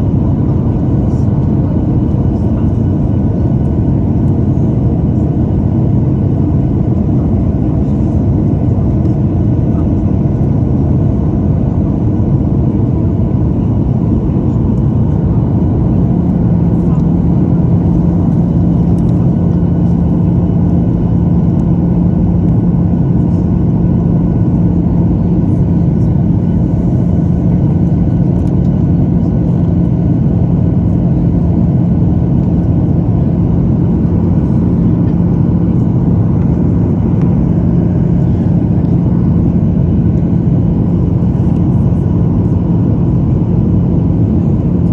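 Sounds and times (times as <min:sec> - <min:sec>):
low hum: 0:00.0 - 0:06.1, 0:07.0 - 0:44.9
aircraft cabin engine roar: 0:00.0 - 0:44.9.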